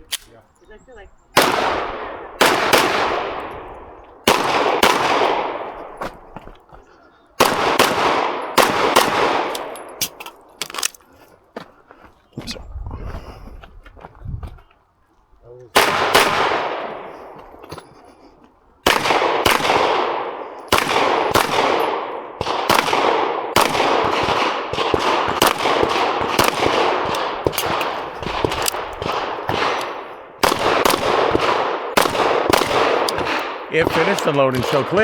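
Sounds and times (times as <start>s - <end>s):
pistol shots with echo: 1.4s - 6.4s, 7.4s - 10.9s, 15.7s - 17.8s, 18.8s - 35.0s.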